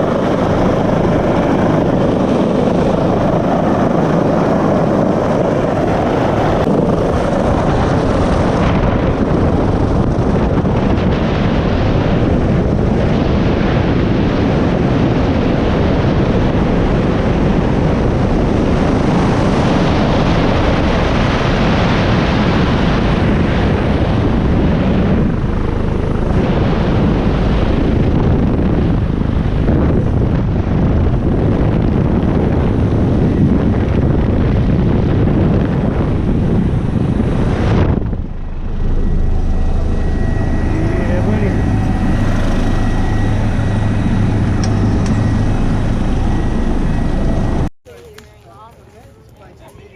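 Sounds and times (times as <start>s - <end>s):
helicopter engine and rotor: 0.0s - 47.7s.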